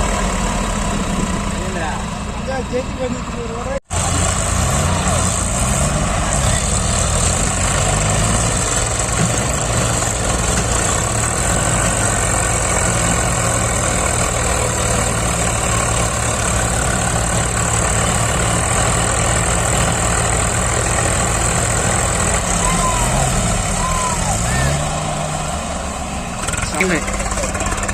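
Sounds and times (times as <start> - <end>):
heavy diesel engine running: 0.0 - 27.9.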